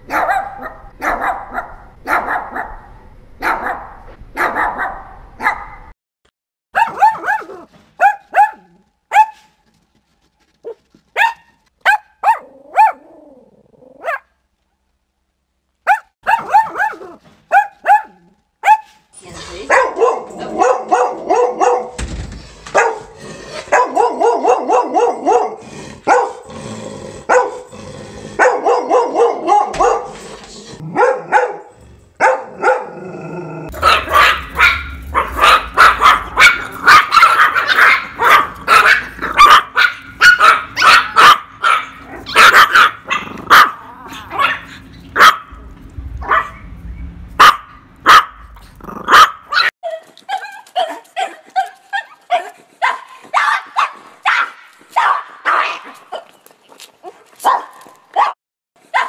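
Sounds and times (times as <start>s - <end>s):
dog barking: 0.0s - 5.9s, 6.7s - 9.5s, 10.6s - 13.1s, 14.0s - 14.3s, 15.8s - 22.0s, 22.7s - 26.5s, 27.3s - 27.7s, 28.4s - 30.2s, 30.8s - 33.0s, 33.7s - 45.6s, 46.2s - 46.6s, 47.4s - 56.3s, 57.0s - 59.0s
small dog yapping: 6.8s - 9.5s, 10.6s - 13.2s, 14.0s - 14.2s, 15.9s - 19.0s, 33.7s - 45.5s, 47.4s - 48.4s, 49.0s - 56.4s, 57.0s - 59.0s.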